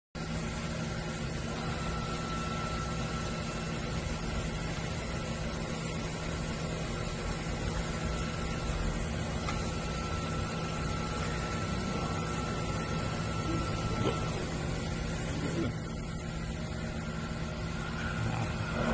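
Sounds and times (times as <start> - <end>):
high constant whine: 0.2 - 18.9
machine hum: 0.2 - 18.9.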